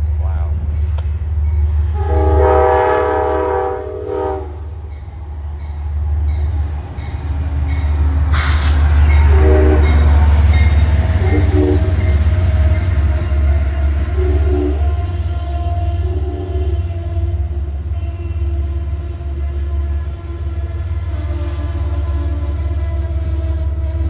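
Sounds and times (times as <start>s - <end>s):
locomotive engine rumble: 0.0s - 24.0s
diesel train horn chord: 1.9s - 4.9s, 9.0s - 24.0s.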